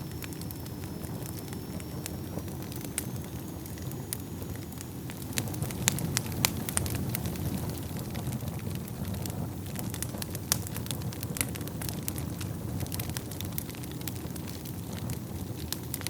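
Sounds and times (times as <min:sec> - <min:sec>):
faint high whistle: 0:00.0 - 0:05.6
wood fire crackling and popping: 0:00.0 - 0:16.0.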